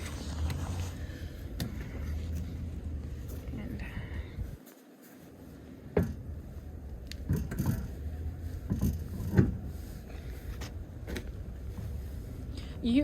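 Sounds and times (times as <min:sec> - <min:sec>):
low steady rumble: 0:00.0 - 0:04.6, 0:05.4 - 0:13.0
knocks and clunks: 0:05.9 - 0:06.4, 0:07.1 - 0:09.7.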